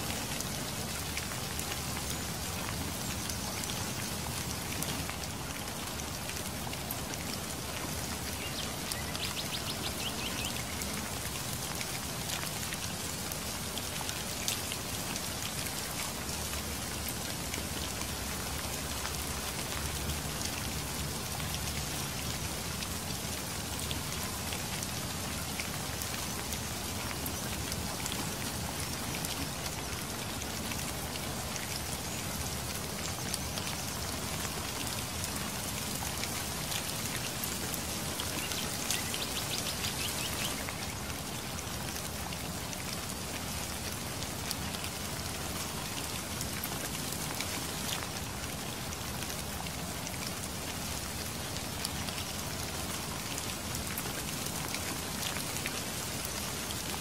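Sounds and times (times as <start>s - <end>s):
rain hissing: 16.1s - 57.0s.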